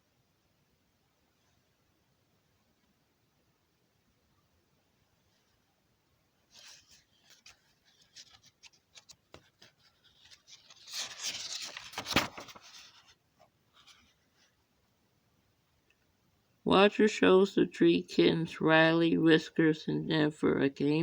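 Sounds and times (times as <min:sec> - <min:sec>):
rustling and scraping: 0:06.5 - 0:14.6.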